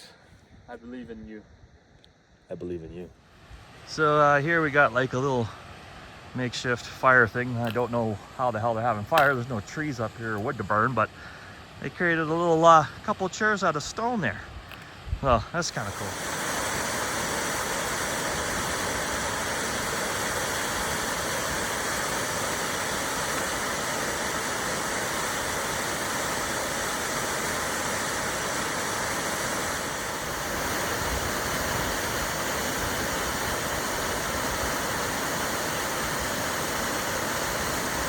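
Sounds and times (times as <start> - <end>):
waterfall roaring: 6.5 - 12.6, 15.5 - 38.0.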